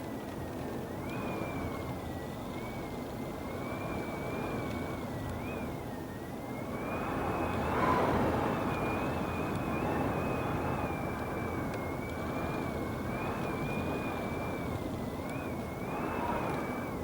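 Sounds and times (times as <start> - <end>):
high wavering whistle: 3.5 - 17.0
gusting wind rushing: 6.4 - 17.0.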